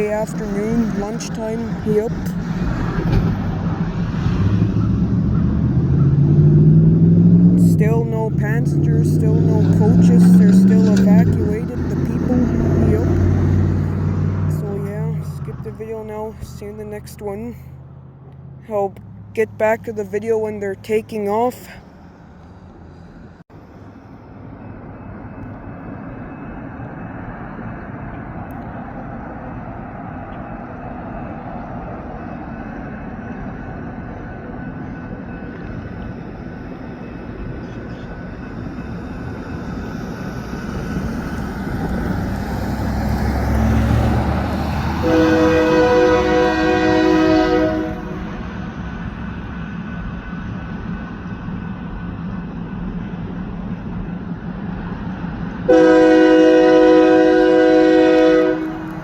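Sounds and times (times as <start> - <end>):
diesel locomotive engine rumble: 0.0 - 59.0
train horn blast: 44.8 - 48.7, 55.7 - 59.0.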